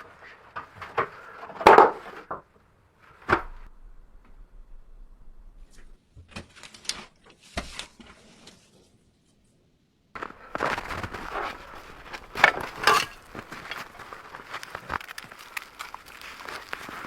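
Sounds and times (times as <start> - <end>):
scraping and rustling: 10.2 - 17.0.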